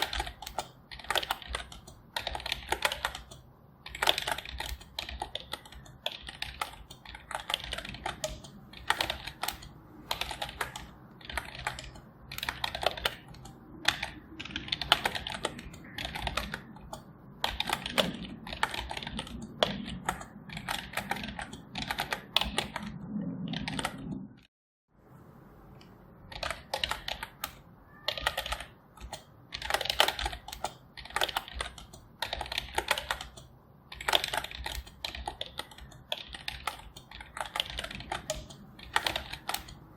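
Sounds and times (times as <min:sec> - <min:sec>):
typing on computer keyboard: 0:00.0 - 0:24.3, 0:26.3 - 0:39.9.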